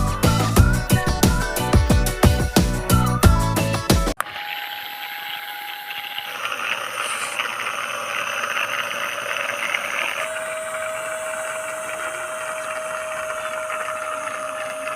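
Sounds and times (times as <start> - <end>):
small motor whirring propeller: 4.2 - 14.9.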